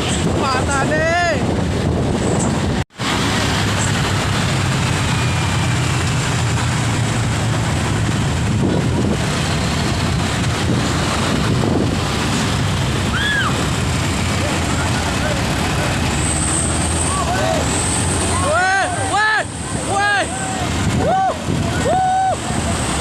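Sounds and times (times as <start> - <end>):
wind noise on microphone: 0.0 - 14.6, 19.6 - 23.0
truck engine humming: 0.0 - 23.0.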